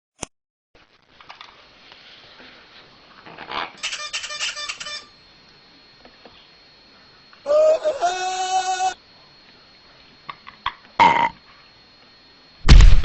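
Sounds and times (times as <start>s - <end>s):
parrot squawking: 3.8s - 5.1s, 7.5s - 9.0s.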